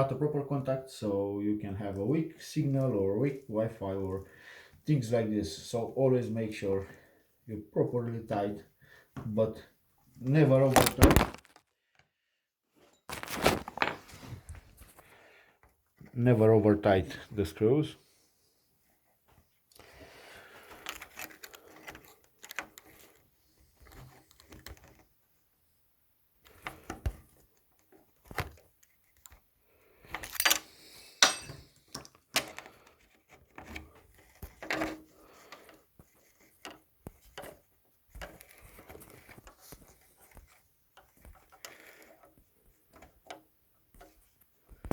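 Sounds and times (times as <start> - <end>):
small metal parts handled: 10.7 - 11.6, 13.1 - 14.2, 30.1 - 33.1.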